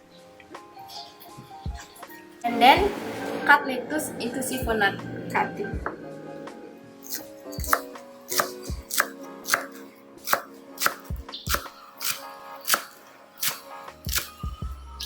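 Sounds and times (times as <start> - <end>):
knife chopping on cutting board: 7.1 - 14.3.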